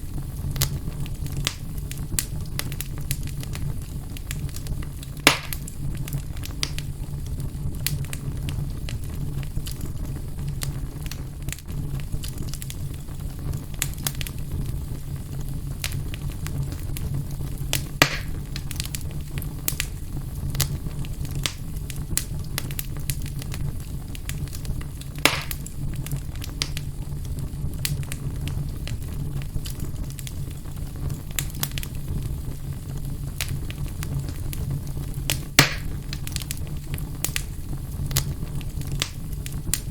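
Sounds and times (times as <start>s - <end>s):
wood fire burning: 0.0s - 39.9s.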